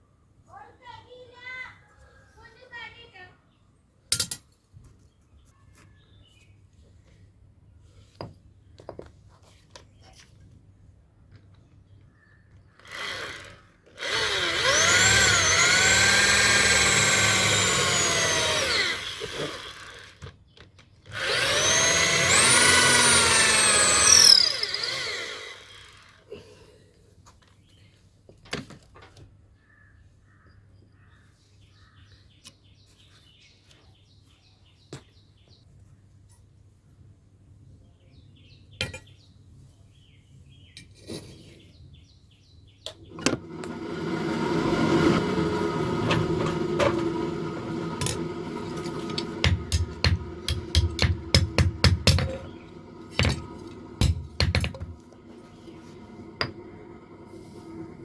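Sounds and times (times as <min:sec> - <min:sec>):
electric power tool whining: 0:12.8 - 0:20.4, 0:21.1 - 0:26.3, 0:43.0 - 0:58.0.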